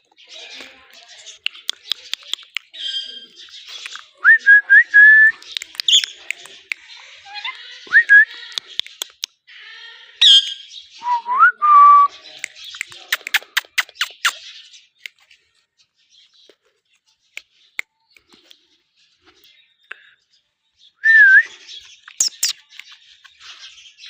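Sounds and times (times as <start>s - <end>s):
parakeet clicks: 0.9s - 2.8s, 5.4s - 6.8s, 8.3s - 9.4s, 12.4s - 14.4s.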